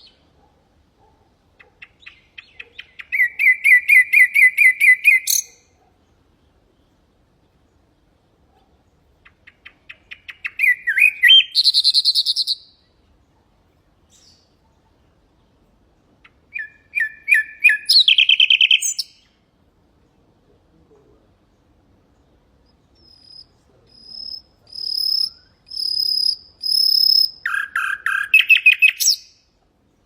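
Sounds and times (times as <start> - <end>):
nightingale singing: 0.0 - 0.4, 1.5 - 8.1, 8.8 - 13.0, 14.0 - 14.8, 16.2 - 19.4, 21.4 - 29.6.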